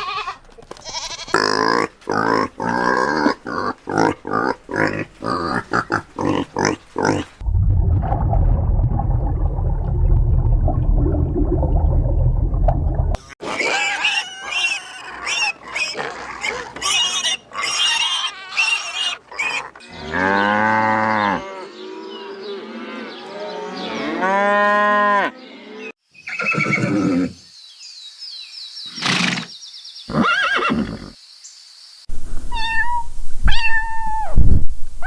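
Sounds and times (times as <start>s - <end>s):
low rumbling: 7.4s - 13.4s
farm animals calling: 13.4s - 27.4s.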